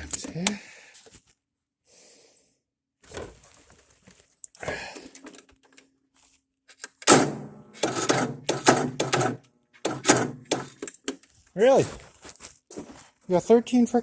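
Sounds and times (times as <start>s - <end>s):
tractor starter motor cranking: 7.0s - 10.9s.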